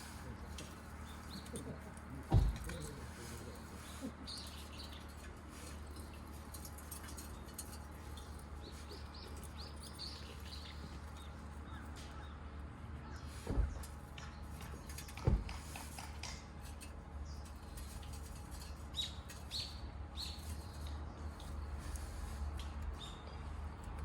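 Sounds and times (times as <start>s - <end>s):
small birds chirping: 0.0s - 24.0s
dull thump: 2.3s - 2.8s.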